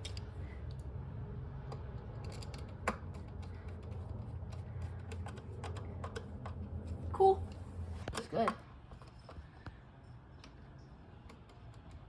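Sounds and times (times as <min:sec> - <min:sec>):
steady low hum: 0:00.0 - 0:12.0
clicks and taps of hard parts: 0:01.6 - 0:07.0, 0:10.4 - 0:12.0.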